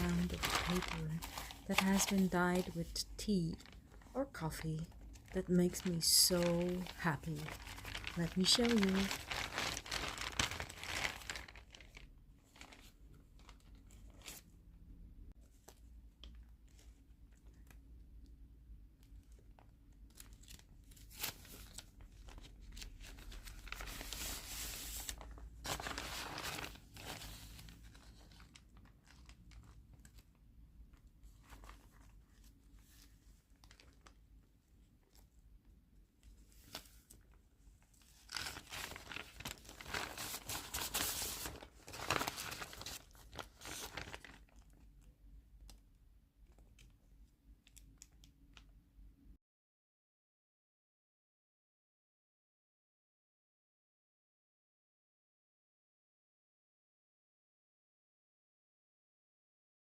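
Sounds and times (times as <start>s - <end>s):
paper rustling and crinkling: 0.0s - 14.5s, 19.1s - 34.3s, 36.2s - 44.9s.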